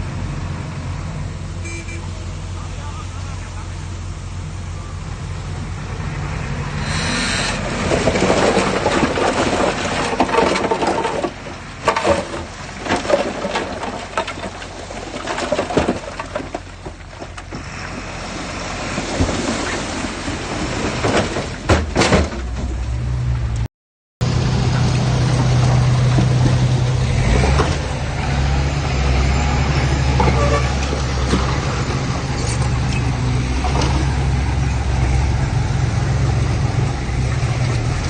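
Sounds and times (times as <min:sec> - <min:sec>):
heavy diesel engine droning: 0:00.0 - 0:10.3, 0:22.6 - 0:38.0
earth and rocks clattering: 0:07.6 - 0:17.7.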